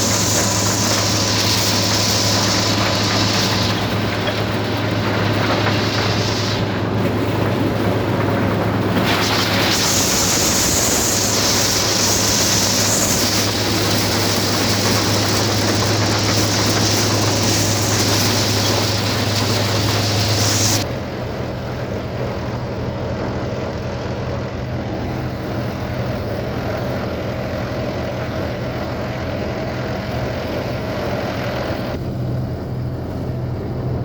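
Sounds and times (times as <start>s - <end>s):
maize sheller rushing hiss: 0.0s - 20.9s
tractor engine running: 0.0s - 34.0s.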